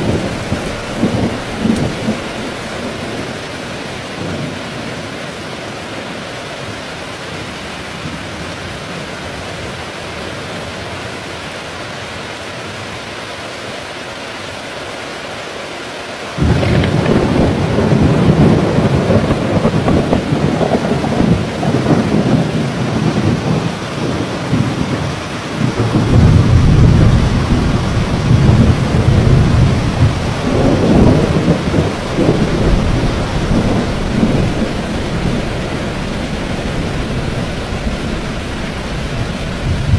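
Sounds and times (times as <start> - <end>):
thunder rumbling: 0.0 - 4.8, 16.4 - 39.9
heavy rain: 0.0 - 39.9.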